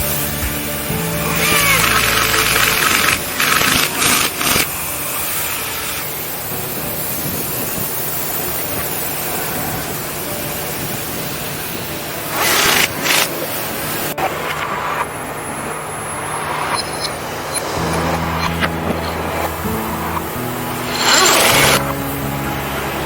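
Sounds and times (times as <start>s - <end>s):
constant hiss: 0.0s - 23.0s
loud bursts of hissing: 0.0s - 23.0s
machinery low hum: 14.1s - 23.0s.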